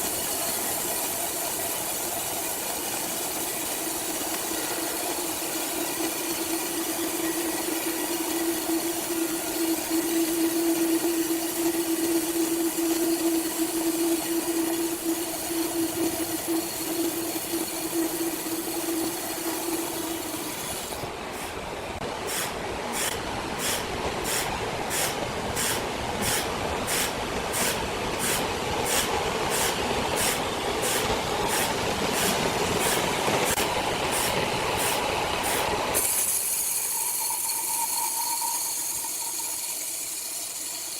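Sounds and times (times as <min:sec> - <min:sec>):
sawmill machinery humming: 0:00.0 - 0:37.7
rough mechanical noise: 0:04.1 - 0:36.4.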